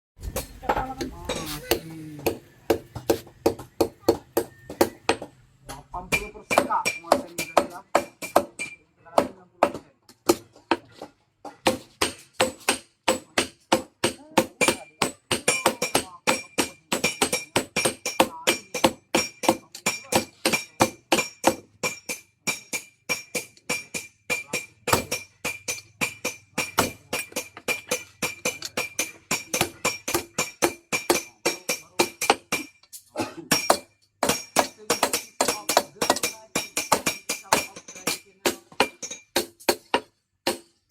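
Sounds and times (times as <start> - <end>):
hammer ringing on anvil: 6.1 - 8.8, 11.7 - 32.8, 33.5 - 40.6.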